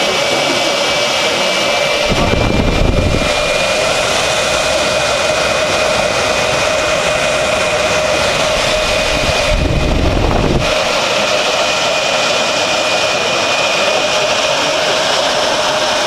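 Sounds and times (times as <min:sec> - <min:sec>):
exhaust fan air rush with hum: 0:00.9 - 0:13.1
low rumble: 0:02.0 - 0:06.2, 0:07.6 - 0:10.9.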